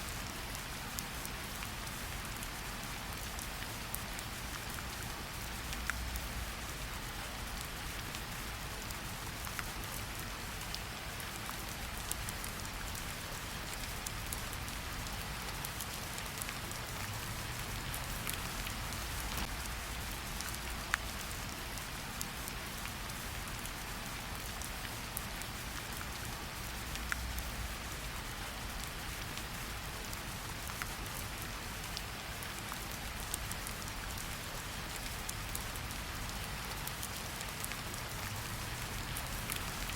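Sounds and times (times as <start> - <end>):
steady rain hiss: 0.0 - 39.9
raindrops pattering: 0.1 - 39.9.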